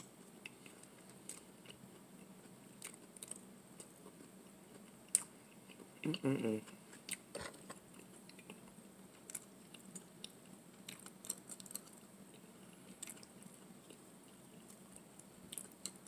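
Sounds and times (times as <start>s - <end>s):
faint chewing of pasta: 0.0s - 16.0s.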